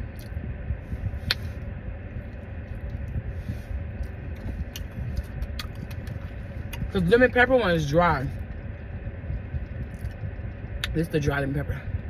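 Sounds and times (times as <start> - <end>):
car engine idling: 0.0 - 12.0
mouth smacks and clicks: 1.2 - 1.5, 4.0 - 6.9
person chewing food: 3.8 - 6.9, 9.8 - 10.2.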